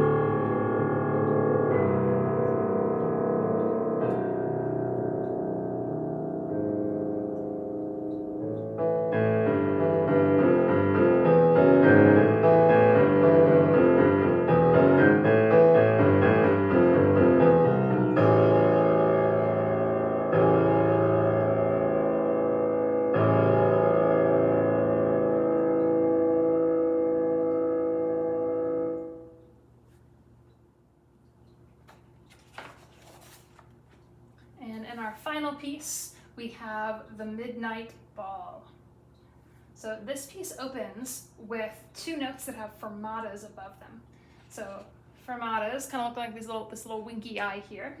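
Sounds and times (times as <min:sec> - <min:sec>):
solo piano playing: 0:00.0 - 0:29.6.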